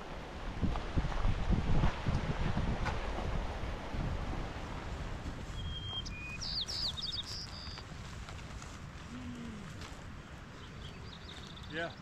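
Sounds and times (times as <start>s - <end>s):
outdoor background rush: 0.0s - 12.0s
small bird chirping: 5.5s - 7.9s, 10.6s - 12.0s.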